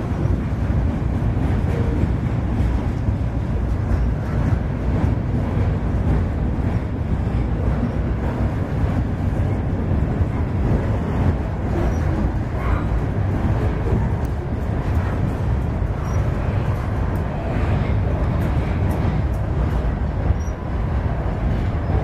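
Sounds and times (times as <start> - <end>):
train wheels rumbling on a bridge: 0.0 - 22.0.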